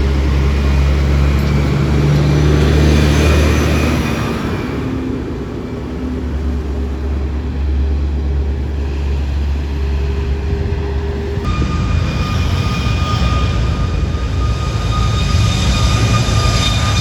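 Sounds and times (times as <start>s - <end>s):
aircraft engines rumbling: 0.0s - 17.0s
high-pitched whine: 8.8s - 17.0s.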